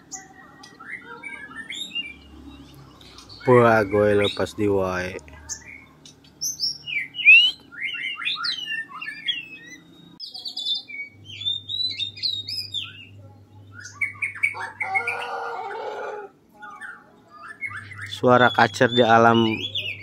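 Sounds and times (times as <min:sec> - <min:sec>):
bird singing whistled phrases: 0:00.1 - 0:02.3, 0:05.5 - 0:13.1, 0:13.7 - 0:15.4, 0:16.6 - 0:20.0.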